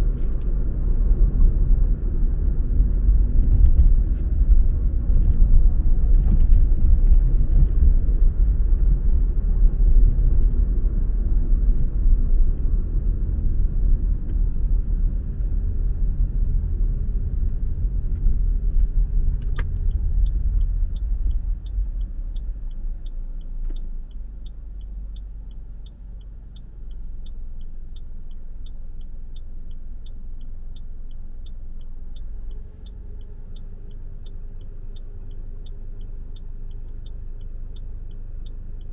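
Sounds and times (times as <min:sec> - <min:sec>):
car road and engine rumble: 0:00.0 - 0:38.9
turn signal ticking: 0:00.0 - 0:38.9
click: 0:19.4 - 0:38.9.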